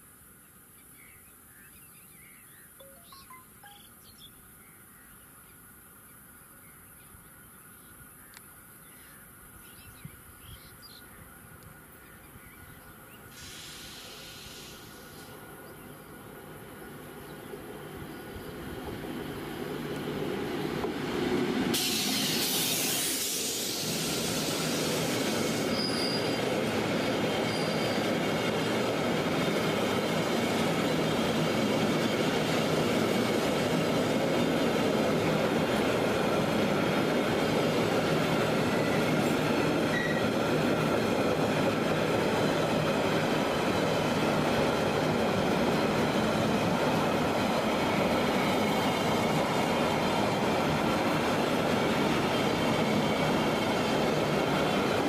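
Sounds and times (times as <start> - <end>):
train wheels rumbling on rail: 13.0 - 55.0
loud high hiss: 13.3 - 15.4, 21.7 - 26.4
faint wheel squeals: 25.7 - 26.4, 27.4 - 28.1.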